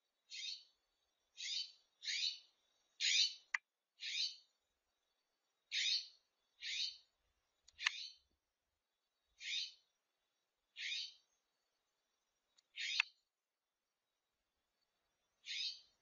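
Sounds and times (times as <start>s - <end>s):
bird rasping alarm calls: 12.8s - 13.0s.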